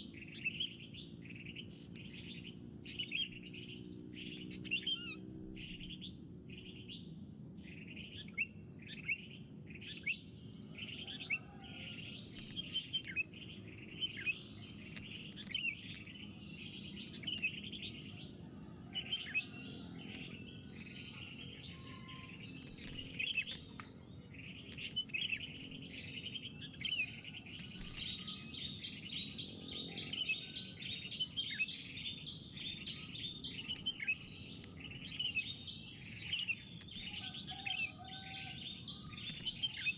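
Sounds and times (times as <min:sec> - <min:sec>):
small birds chirping: 0:00.0 - 0:39.9
high insect drone: 0:10.4 - 0:39.9.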